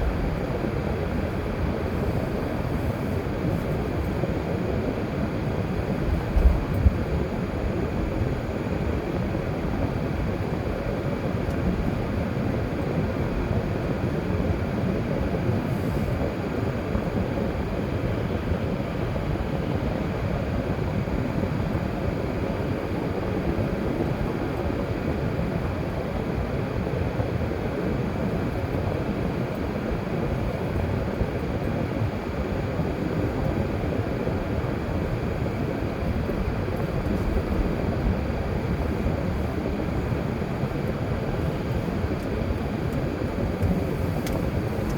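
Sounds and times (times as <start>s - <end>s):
car road noise rumble: 34.3s - 44.9s.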